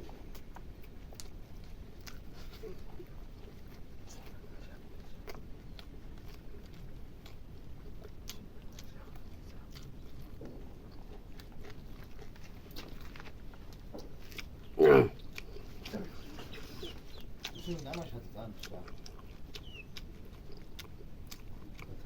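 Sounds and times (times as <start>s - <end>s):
chewing and crunching food: 0.0s - 22.0s.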